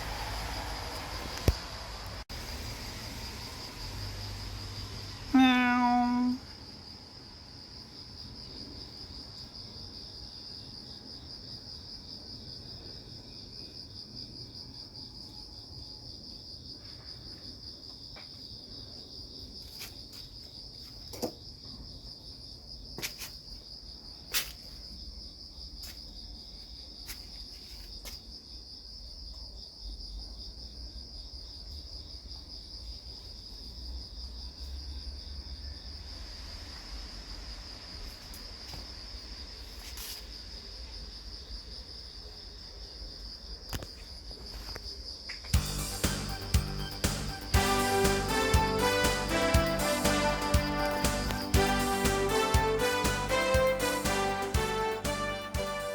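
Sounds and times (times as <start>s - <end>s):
night insects trilling: 0.0s - 49.7s.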